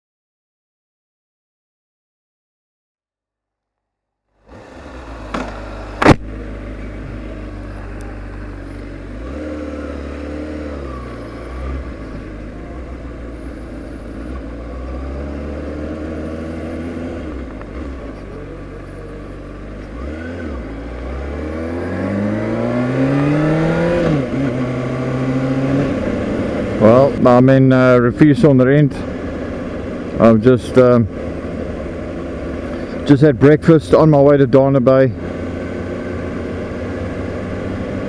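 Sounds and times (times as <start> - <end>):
motorcycle engine accelerating: 4.4 - 38.0
sharp knock: 5.3 - 6.2.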